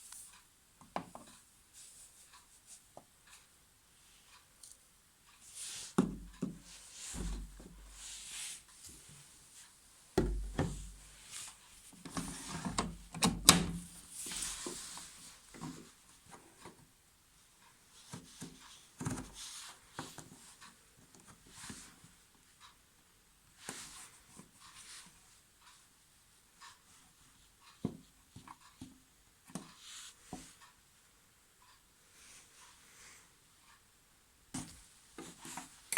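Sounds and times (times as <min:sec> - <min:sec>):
washing machine knocks and rubbing: 0:07.2 - 0:07.9, 0:10.2 - 0:11.0.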